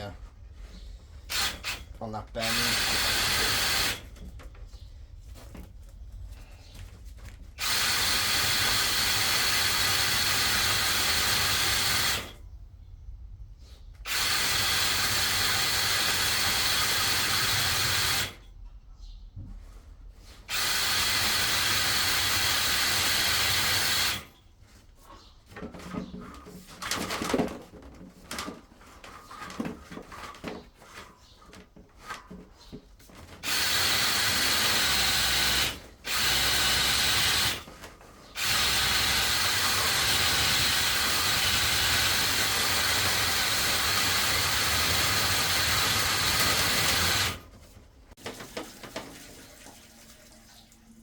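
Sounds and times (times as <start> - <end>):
knocking and rubbing in pipe: 24.7 - 33.4
drain cleaning machine spinning: 33.4 - 37.7, 38.4 - 47.5.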